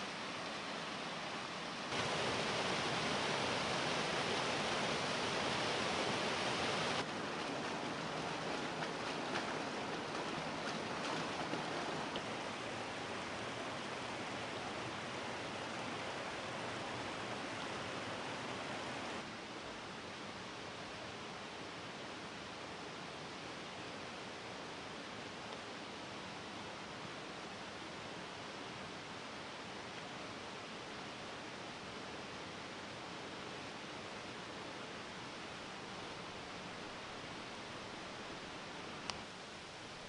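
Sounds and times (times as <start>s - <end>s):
waterfall rushing: 0.0s - 19.3s.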